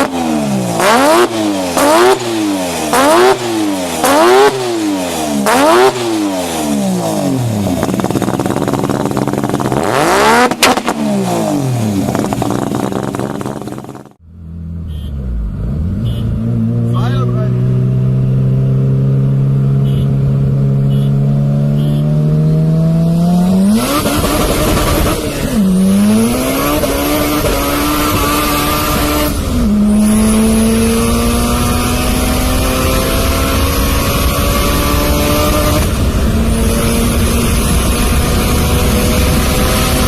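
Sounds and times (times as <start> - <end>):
car engine accelerating: 0.0 - 40.0.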